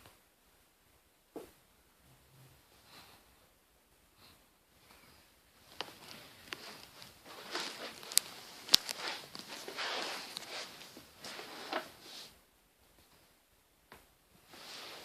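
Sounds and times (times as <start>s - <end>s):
rustling and handling noises: 4.8s - 13.3s, 14.4s - 15.0s.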